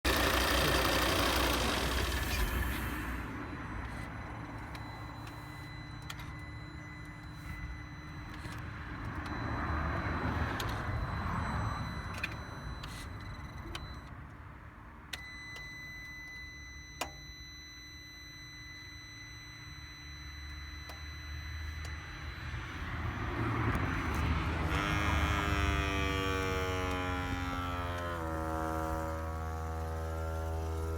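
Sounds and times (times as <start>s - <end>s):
high-pitched electrical buzz: 21.2s - 30.9s.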